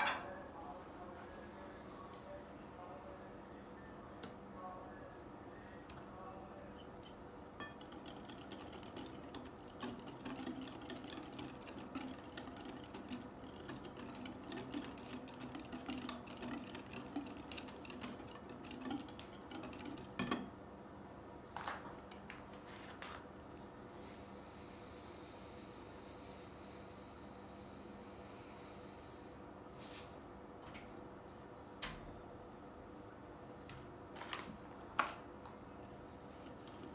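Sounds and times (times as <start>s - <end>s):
utensil scraping in bowl: 6.8s - 20.2s, 36.0s - 36.9s.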